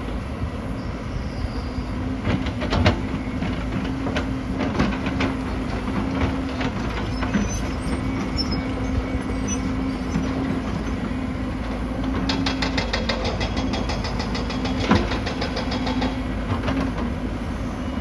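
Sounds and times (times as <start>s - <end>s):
excavator diesel engine running: 0.0s - 18.0s
clanks and knocks of rock: 12.0s - 17.2s.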